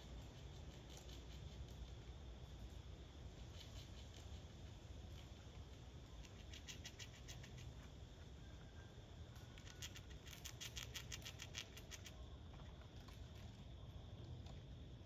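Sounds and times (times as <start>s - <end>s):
rodent gnawing clicks: 0.2s - 2.0s, 6.2s - 7.7s, 9.4s - 12.2s.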